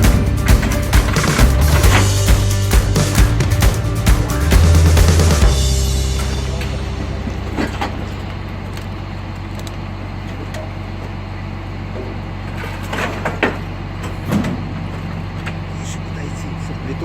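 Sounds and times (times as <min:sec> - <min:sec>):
garbage truck engine running: 0:00.0 - 0:17.0.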